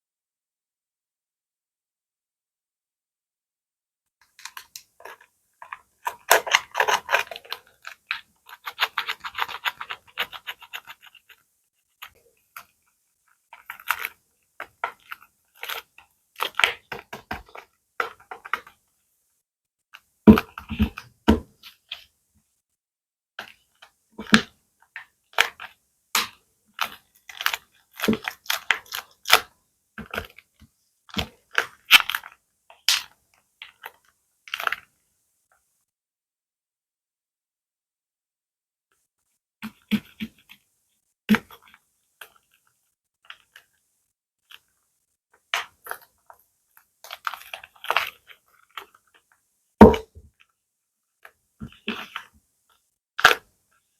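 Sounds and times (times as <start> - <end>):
hands crinkling and rustling: 4.2 - 18.9, 23.4 - 34.9, 41.3 - 50.5, 51.2 - 53.9.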